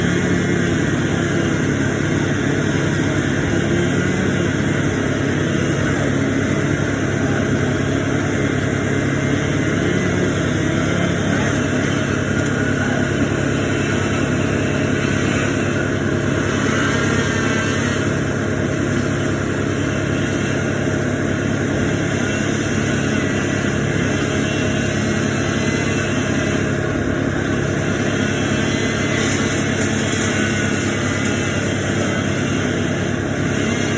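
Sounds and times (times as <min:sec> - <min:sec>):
large engine droning: 0:00.0 - 0:33.9.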